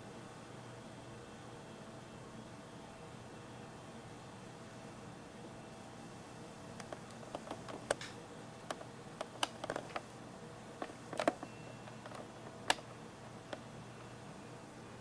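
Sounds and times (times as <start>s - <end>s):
small irregular clicks and taps: 6.8s - 10.1s, 10.8s - 13.7s.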